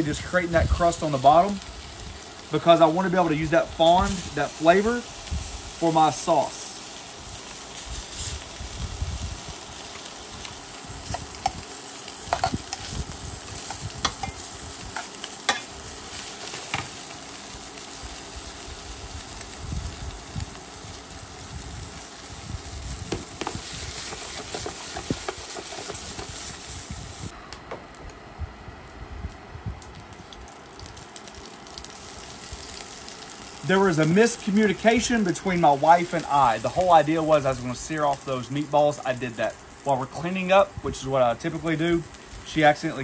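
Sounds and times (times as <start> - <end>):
meatballs sizzling in a pan: 0.0 - 27.4, 30.4 - 43.0
metal tongs clinking on pan: 15.0 - 15.7.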